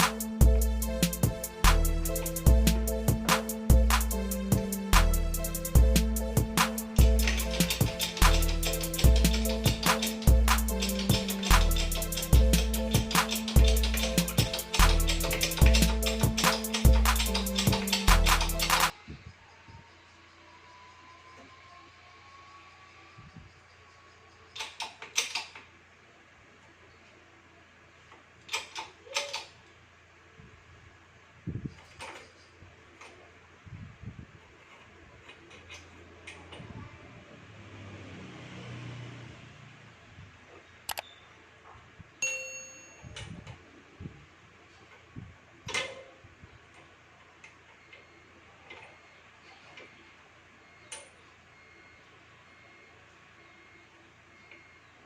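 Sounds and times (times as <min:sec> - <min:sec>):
metal piece ringing: 0:00.0 - 0:18.9, 0:42.2 - 0:43.2
tools clicking and knocking: 0:00.0 - 0:19.0, 0:24.5 - 0:25.7, 0:28.1 - 0:29.7, 0:31.8 - 0:32.4, 0:34.6 - 0:36.6.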